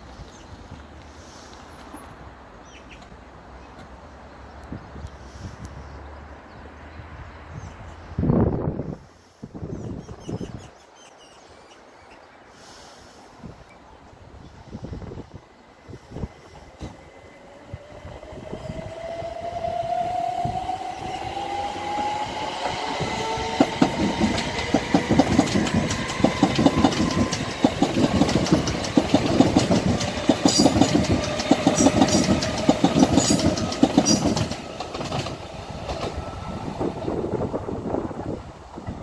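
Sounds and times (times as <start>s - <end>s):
train whine rising in pitch: 16.8s - 38.4s
wheels clattering over rail joints: 23.6s - 36.2s.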